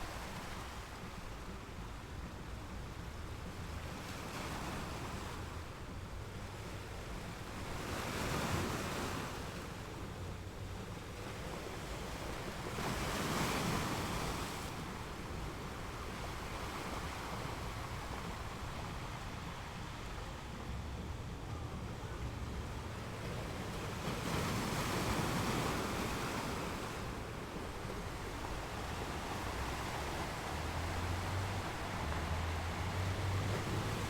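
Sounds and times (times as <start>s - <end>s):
ocean waves washing in: 8.6s - 34.0s.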